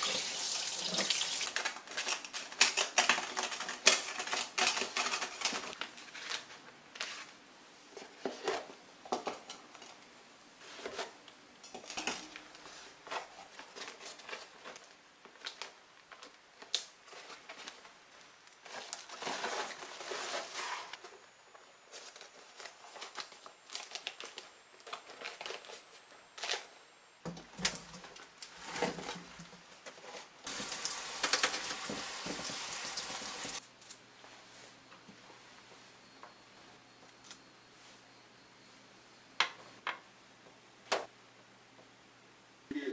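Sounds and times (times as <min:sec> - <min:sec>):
plastic wrapping crinkling: 0:21.9 - 0:26.7.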